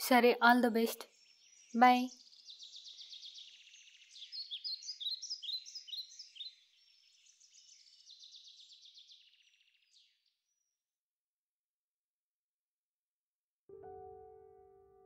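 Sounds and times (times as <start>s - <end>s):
small songbirds chirping and trilling: 0.0s - 11.0s.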